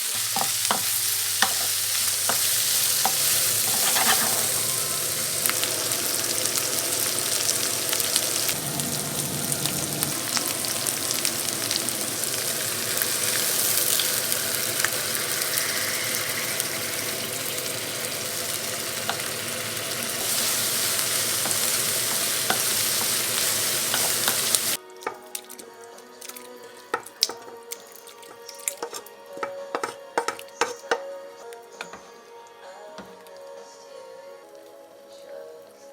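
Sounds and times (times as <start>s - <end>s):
food sizzling in hot oil: 0.0s - 24.8s
utensil scraping a pan: 0.4s - 4.9s.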